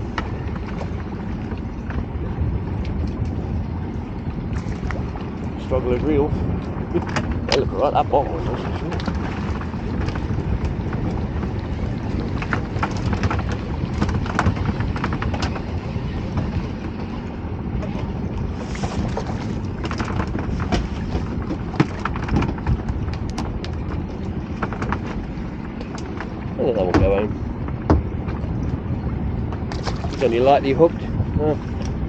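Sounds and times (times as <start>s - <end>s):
low rumble: 0.0s - 32.0s
wind buffeting microphone: 0.0s - 32.0s.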